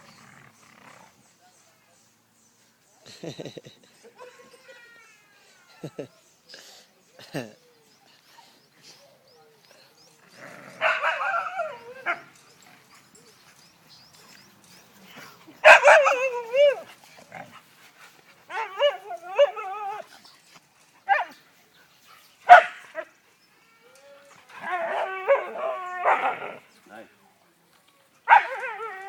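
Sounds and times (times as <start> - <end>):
dogs whining and yipping: 15.6 - 17.0, 18.5 - 21.4, 24.3 - 26.6, 28.3 - 29.0
sharp dog bark: 22.5 - 22.8.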